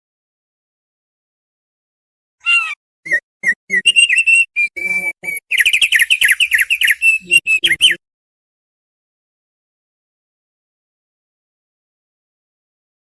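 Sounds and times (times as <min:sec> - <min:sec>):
bird singing whistled notes: 0:02.5 - 0:08.0.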